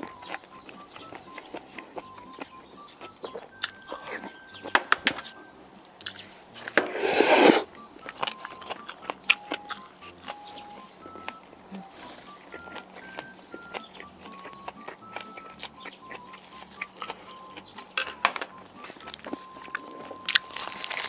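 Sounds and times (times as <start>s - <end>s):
close chewing and mouth clicks: 0.0s - 21.0s
faint simple background melody: 0.0s - 21.0s
loud sucking sound: 6.8s - 7.7s.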